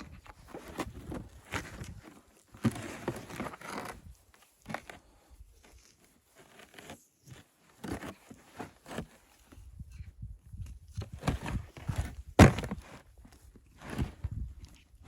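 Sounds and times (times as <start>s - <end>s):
rustling and crinkling handling: 0.0s - 15.0s
soft knocks and crunches: 10.5s - 14.9s.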